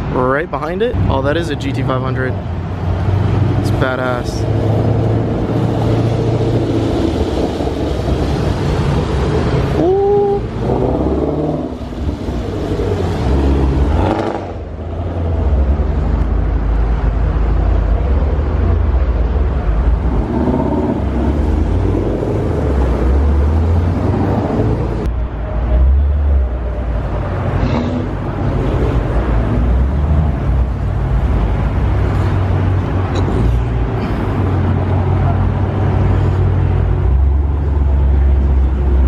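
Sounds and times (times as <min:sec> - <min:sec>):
car engine revving: 0:02.7 - 0:16.2, 0:19.7 - 0:25.1.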